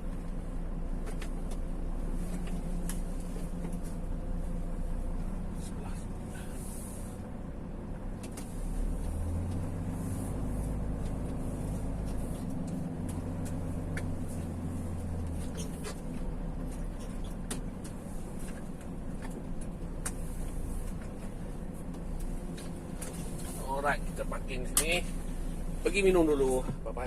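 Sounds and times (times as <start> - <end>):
vehicle engine and road drone: 0.0 - 27.0.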